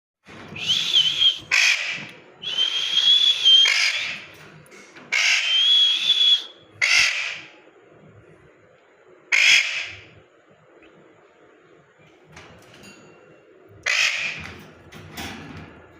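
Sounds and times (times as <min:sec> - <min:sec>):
parrot screeching: 0:00.6 - 0:04.3, 0:05.1 - 0:07.5, 0:09.3 - 0:10.1, 0:13.8 - 0:14.4
parrot harsh squawk: 0:01.0 - 0:02.1, 0:03.2 - 0:04.3, 0:05.1 - 0:07.5, 0:09.3 - 0:10.1, 0:13.8 - 0:14.4.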